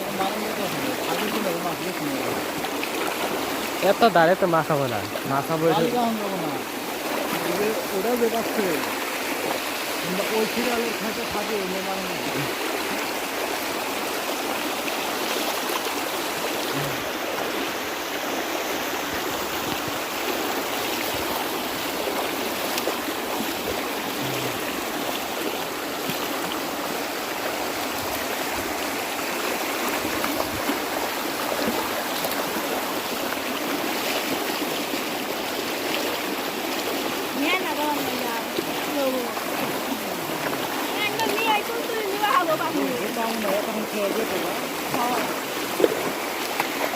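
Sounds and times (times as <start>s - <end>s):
floodwater rushing: 0.0s - 46.9s.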